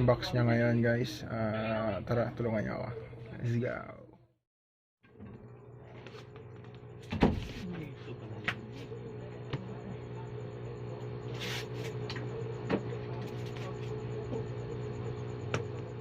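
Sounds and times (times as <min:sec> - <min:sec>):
steady low hum: 0:05.2 - 0:16.0.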